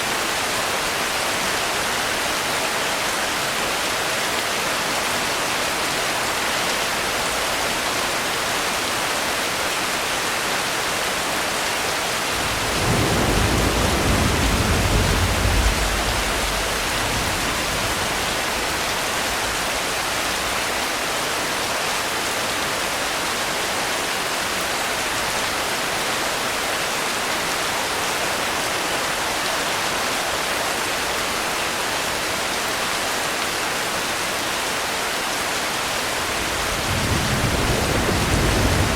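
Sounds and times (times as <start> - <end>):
steady rain: 0.0 - 38.9
low roll of thunder: 12.4 - 20.2, 36.2 - 38.9.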